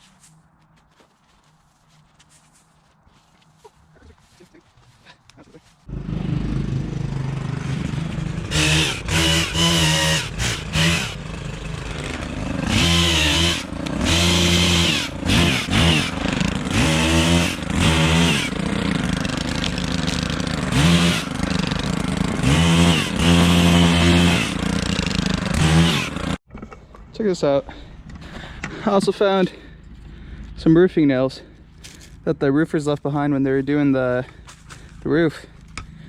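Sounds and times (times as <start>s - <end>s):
pole pruner engine revving: 5.9s - 26.4s.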